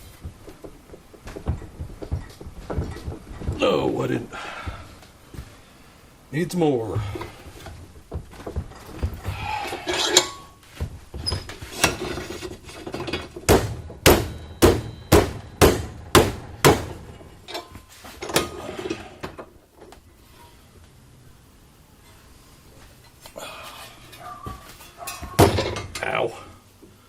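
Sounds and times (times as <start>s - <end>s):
metal clatter: 0.0s - 3.7s, 7.0s - 19.3s
hammer striking steel plate: 13.5s - 17.0s.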